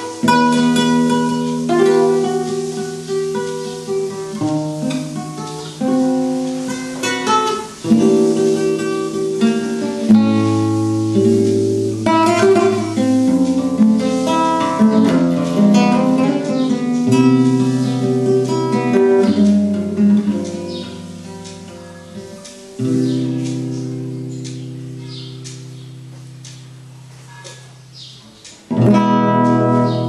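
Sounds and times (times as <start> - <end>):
acoustic guitar playing: 0.0 - 30.0.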